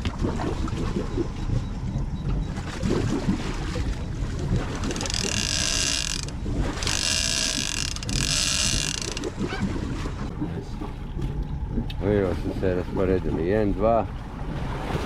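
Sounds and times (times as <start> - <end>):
boat rumble: 0.0 - 15.0
wind: 0.0 - 15.0
fishing reel clicker buzzing: 4.8 - 9.4.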